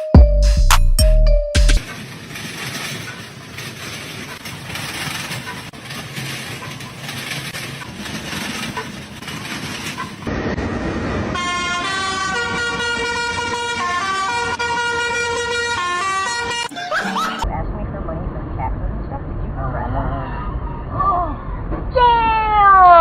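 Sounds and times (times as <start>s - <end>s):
road traffic: 0.0s - 23.0s
vehicle horn: 11.4s - 17.4s.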